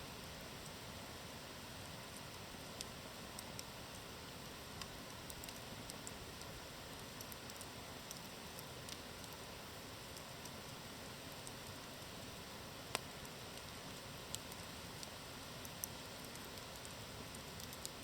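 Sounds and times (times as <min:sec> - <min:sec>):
campfire hissing: 0:00.0 - 0:18.0
fire crackling and popping: 0:01.8 - 0:18.0.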